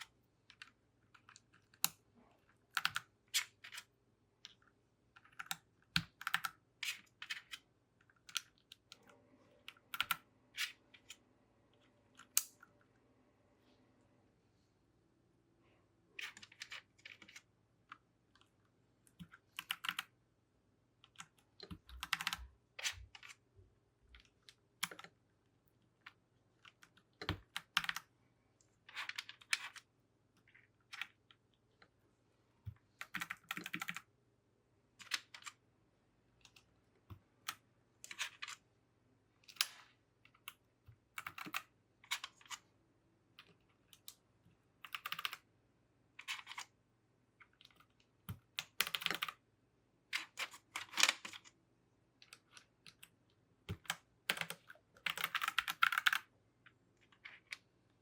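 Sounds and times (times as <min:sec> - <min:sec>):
mechanical keyboard clicking: 0:21.1 - 0:22.4, 0:33.0 - 0:34.0, 0:44.9 - 0:45.4, 0:48.6 - 0:49.4, 0:53.7 - 0:56.2.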